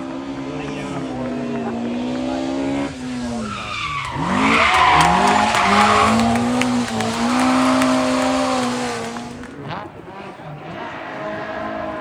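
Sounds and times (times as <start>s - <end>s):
rally car engine revving: 0.0s - 12.0s
tyres squealing: 2.5s - 9.8s.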